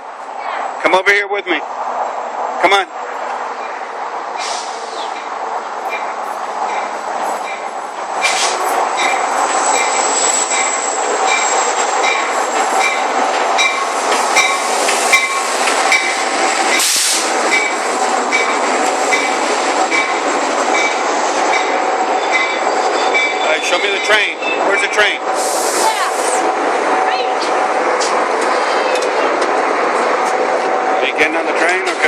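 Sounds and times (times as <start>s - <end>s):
train rail rumble: 0.0s - 32.0s
short hisses: 4.4s - 5.0s, 25.4s - 26.4s
high wheel squeal: 6.8s - 13.0s, 21.6s - 26.3s.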